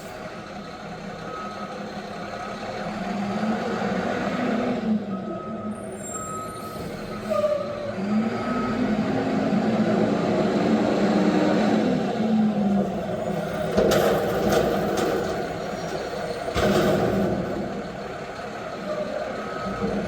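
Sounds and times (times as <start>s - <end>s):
garbage truck diesel engine revving: 7.8s - 20.0s
reversing beeper: 17.6s - 20.0s.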